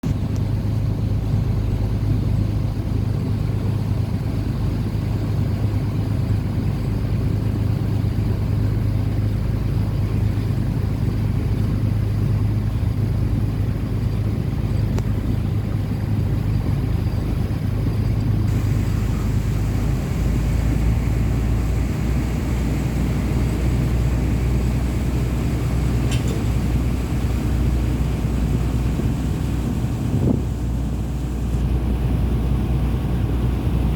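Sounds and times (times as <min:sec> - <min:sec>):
wind: 0:00.0 - 0:33.9
boat engine droning: 0:00.1 - 0:33.9
water hiss: 0:18.5 - 0:31.9.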